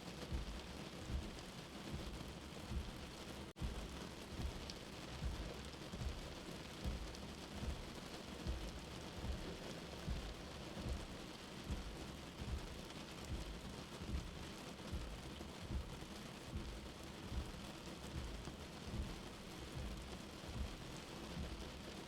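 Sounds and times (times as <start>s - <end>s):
steady rain hiss: 0.0s - 22.0s
low heartbeat thump: 0.2s - 21.8s.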